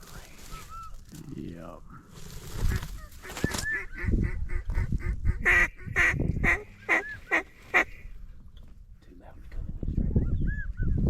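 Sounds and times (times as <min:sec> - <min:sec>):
duck quacking: 0:03.8 - 0:08.0.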